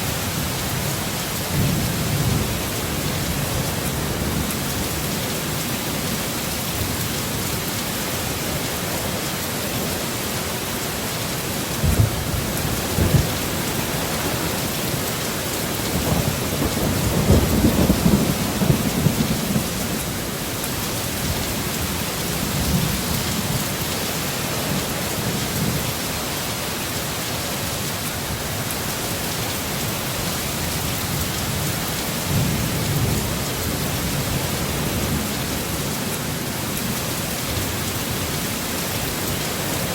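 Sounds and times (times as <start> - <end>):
heavy rain falling: 0.0 - 39.9
rolling thunder rumble: 11.8 - 15.1, 15.8 - 20.3.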